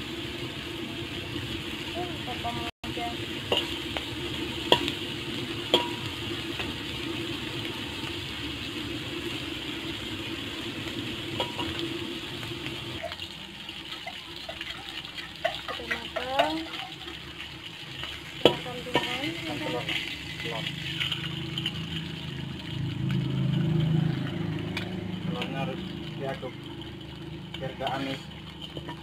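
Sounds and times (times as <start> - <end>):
shrimp sizzling in oil: 0.0 - 29.0
metal spatula clinking on wok: 5.7 - 6.1.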